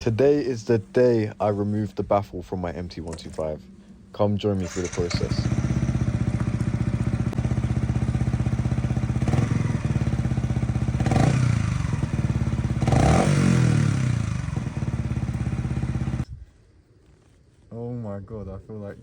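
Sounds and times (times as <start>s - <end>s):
motorcycle engine idling: 4.6s - 16.2s
motorcycle engine revving: 4.6s - 16.2s.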